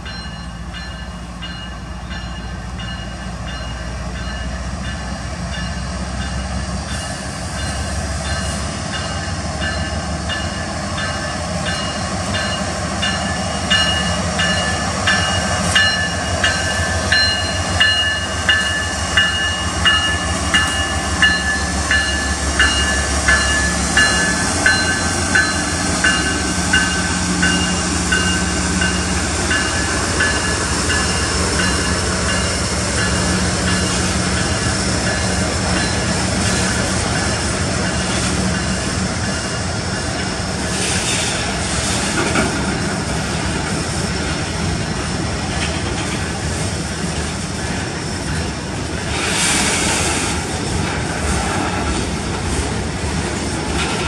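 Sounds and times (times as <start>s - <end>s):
diesel locomotive engine rumble: 0.0s - 54.0s
train wheels on rails: 0.0s - 54.0s
bell ringing: 7.6s - 36.2s.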